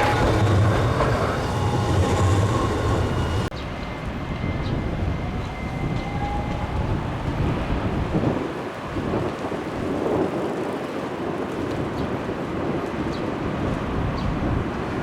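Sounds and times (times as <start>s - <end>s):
wheel squeal: 0.0s - 3.6s
tram rumble: 0.0s - 9.8s.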